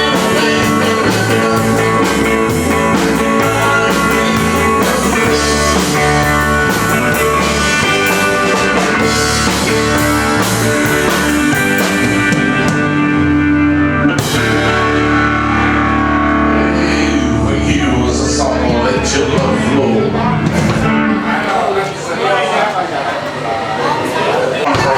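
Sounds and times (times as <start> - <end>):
drum kit with ringing cymbals: 0.0 - 13.4, 14.0 - 16.3
bass: 0.0 - 21.3
guitar: 0.0 - 22.1.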